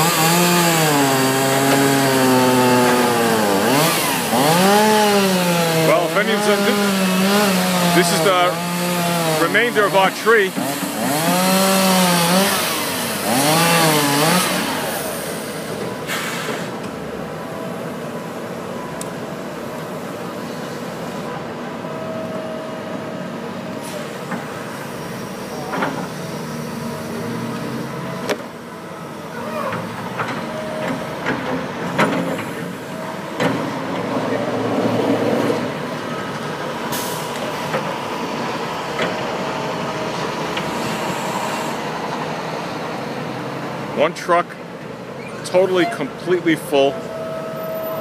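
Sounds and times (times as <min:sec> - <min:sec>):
chainsaw revving: 0:00.0 - 0:15.8.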